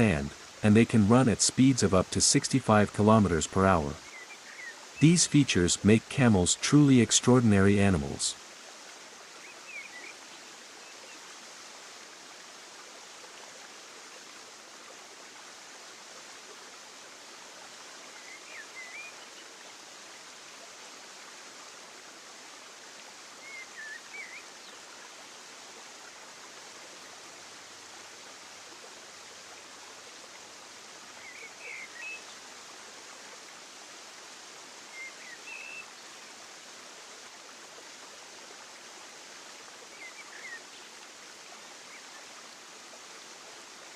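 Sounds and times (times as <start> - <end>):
steady rushing outdoor ambience: 0.0 - 8.4.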